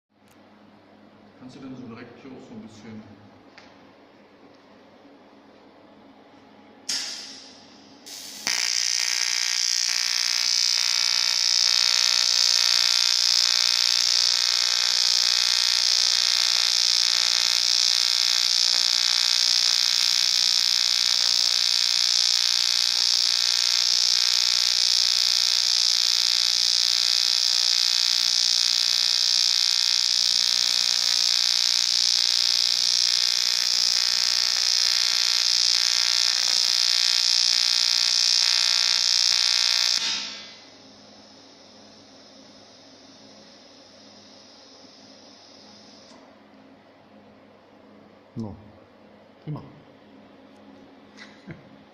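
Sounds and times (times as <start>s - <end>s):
welding arc buzzing: 6.9s - 46.3s.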